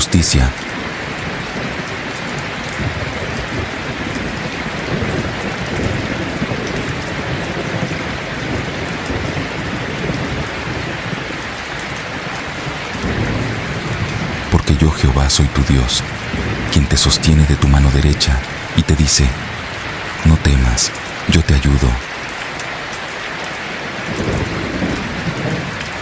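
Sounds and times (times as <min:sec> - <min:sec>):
steady rain falling: 0:00.0 - 0:26.0
low rumble of thunder: 0:02.7 - 0:11.4, 0:12.6 - 0:14.5, 0:15.4 - 0:17.3, 0:24.1 - 0:26.0.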